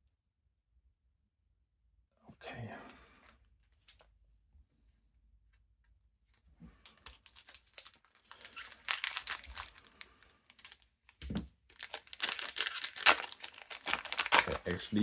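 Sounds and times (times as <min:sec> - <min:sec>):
foil wrapper crinkling and tearing: 0:06.9 - 0:15.0.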